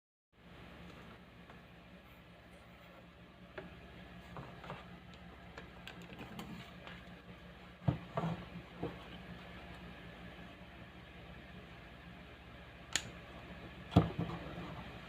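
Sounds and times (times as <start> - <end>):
speaker mains hum: 0.4 - 15.0.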